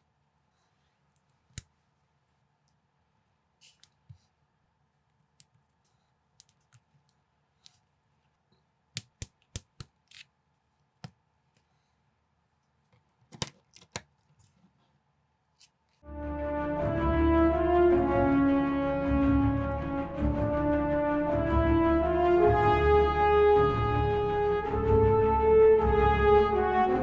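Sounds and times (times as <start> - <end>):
plastic bricks clicking: 13.2 - 14.3
music: 16.0 - 27.0.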